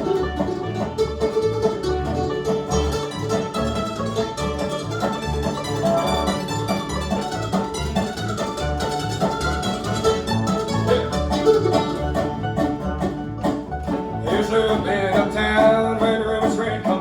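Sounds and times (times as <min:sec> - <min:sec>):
bluegrass band playing: 0:00.0 - 0:17.0.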